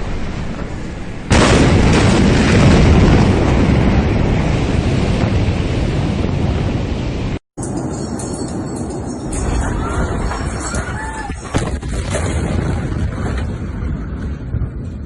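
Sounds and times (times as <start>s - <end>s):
heavy rumble: 0.0s - 15.0s
very loud explosion blast: 1.2s - 7.4s, 11.4s - 15.0s.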